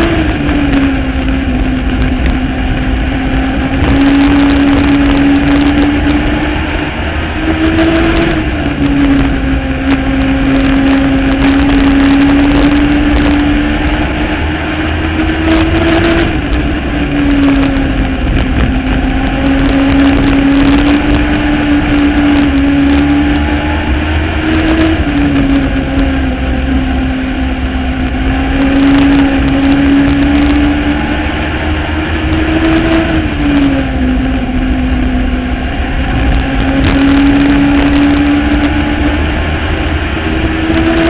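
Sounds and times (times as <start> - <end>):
race car engine running hard: 0.0 - 41.0.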